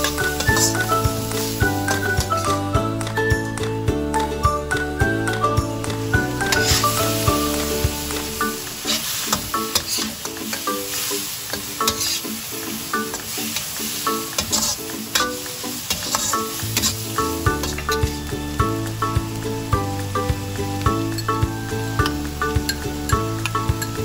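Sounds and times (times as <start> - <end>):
metal utensil scraping a pan: 0.0 - 2.3, 6.4 - 18.2
food sizzling in hot oil: 0.0 - 3.7, 4.7 - 24.0
light plucked music: 0.0 - 24.0.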